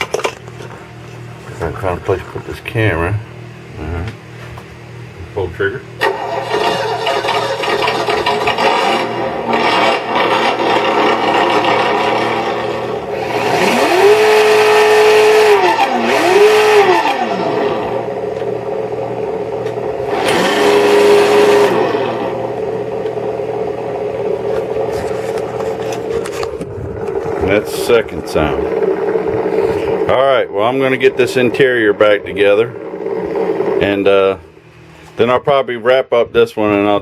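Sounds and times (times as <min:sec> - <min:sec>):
simulated engine revving from speaker: 0:08.4 - 0:18.1, 0:20.0 - 0:22.5.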